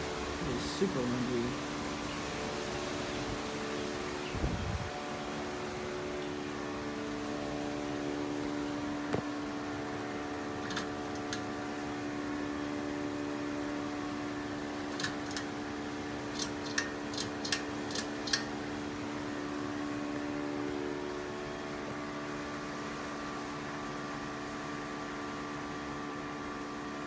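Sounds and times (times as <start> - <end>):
ceiling fan motor humming: 0.0 - 27.0
sharp clicks: 10.6 - 11.5, 14.9 - 15.6, 16.3 - 18.6.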